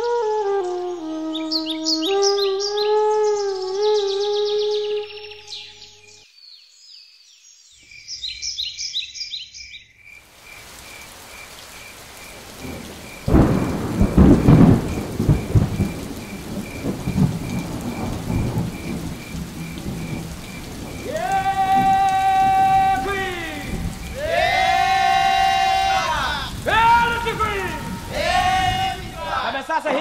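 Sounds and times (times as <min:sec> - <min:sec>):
rain falling: 0:10.2 - 0:30.0
thunder rumble: 0:12.1 - 0:29.4.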